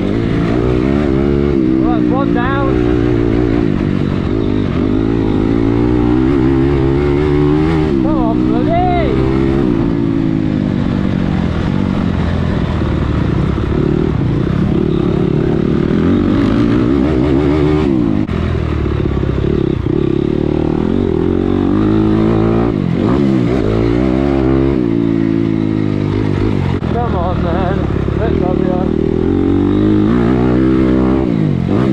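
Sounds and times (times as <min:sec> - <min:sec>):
dirt bike engine revving: 0:00.0 - 0:31.9.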